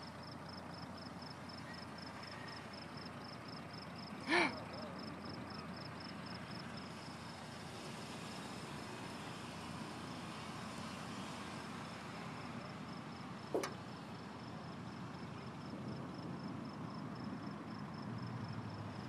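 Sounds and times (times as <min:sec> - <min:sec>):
crickets chirping: 0:00.0 - 0:19.0
sharp click: 0:13.6 - 0:13.8.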